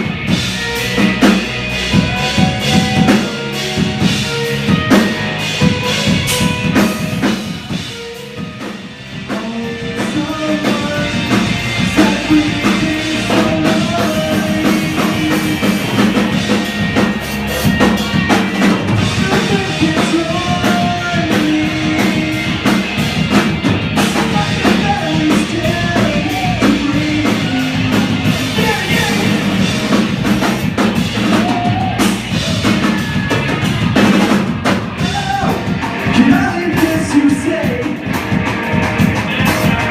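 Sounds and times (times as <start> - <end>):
live rock band playing: 0.0 - 39.9
lead vocal singing: 1.9 - 4.4, 9.2 - 16.6, 18.7 - 23.0, 24.0 - 30.0, 31.2 - 33.6, 35.0 - 38.1.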